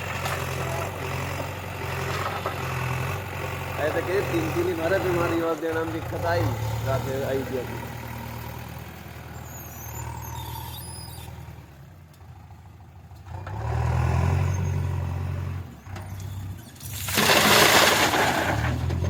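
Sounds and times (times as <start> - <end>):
diesel engine running: 0.0 - 14.2.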